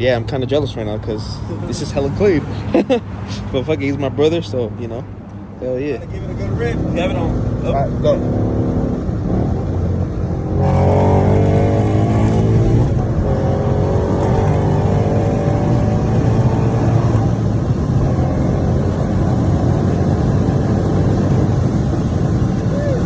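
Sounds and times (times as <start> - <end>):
car engine revving hard: 6.0 - 22.8.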